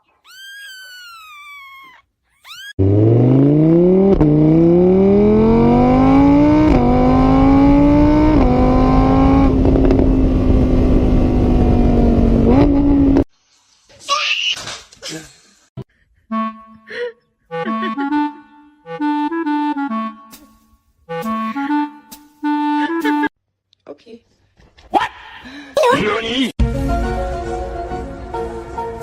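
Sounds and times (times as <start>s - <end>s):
cat meowing: 0.1s - 2.8s
car engine accelerating: 2.8s - 13.3s.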